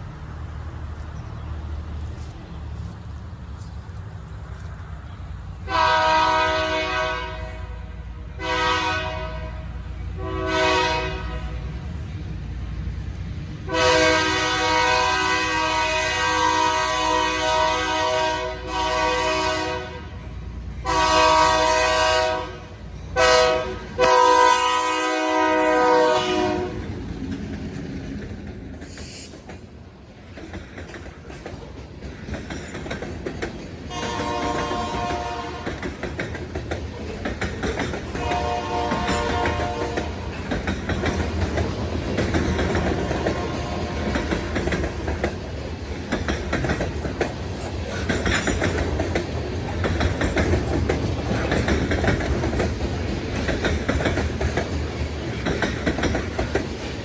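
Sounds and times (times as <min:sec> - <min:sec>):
locomotive rumble: 0:00.0 - 0:57.0
locomotive air horn: 0:05.6 - 0:11.6, 0:13.7 - 0:20.2, 0:20.8 - 0:26.8, 0:33.9 - 0:35.8, 0:38.2 - 0:40.2, 0:42.7 - 0:44.6
rail clatter: 0:10.2 - 0:57.0.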